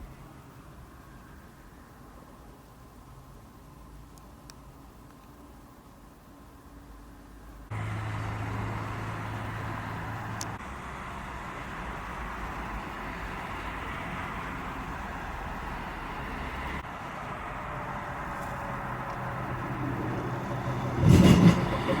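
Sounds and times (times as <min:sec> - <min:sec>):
street traffic: 0:00.0 - 0:22.0
tram wheels rumbling on rails: 0:17.6 - 0:22.0.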